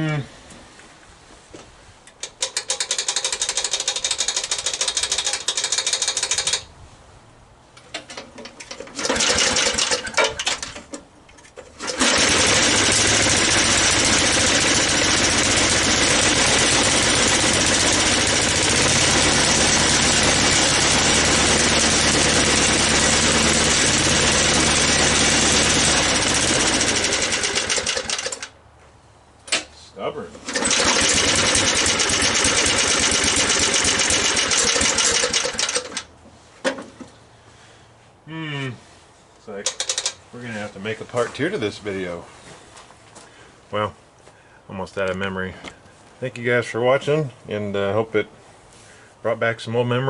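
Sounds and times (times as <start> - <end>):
mower engine running and sputtering: 2.4 - 6.6, 8.8 - 10.6, 11.8 - 28.5, 30.4 - 36.1.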